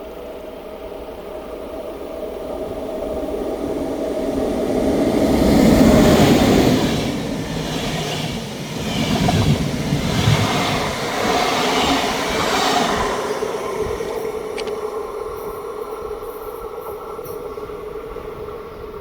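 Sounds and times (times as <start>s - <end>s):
train wheels clattering on rails: 4.5s - 18.4s
locomotive running gear and blower: 5.3s - 15.8s.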